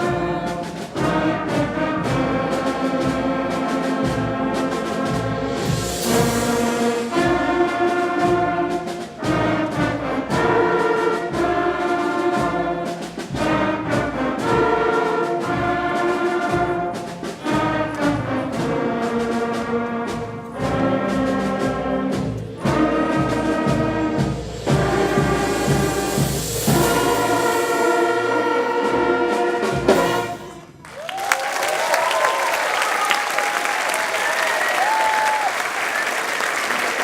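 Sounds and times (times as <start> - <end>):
drum strikes: 0.0 - 30.7
school band brass chords: 0.0 - 37.0.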